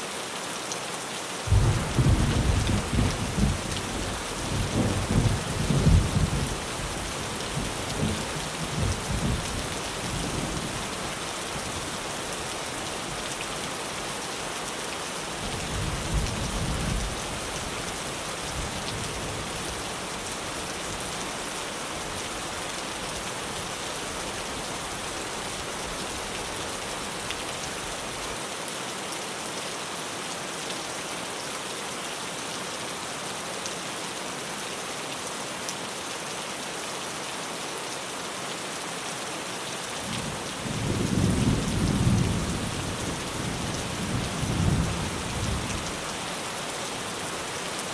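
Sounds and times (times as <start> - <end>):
rain on a tin roof: 0.0 - 47.9
thunder rumbling: 1.5 - 7.0.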